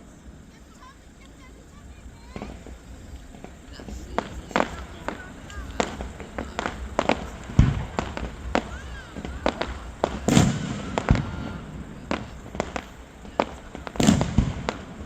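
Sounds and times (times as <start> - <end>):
fireworks bangs and cracks: 0.0 - 15.0.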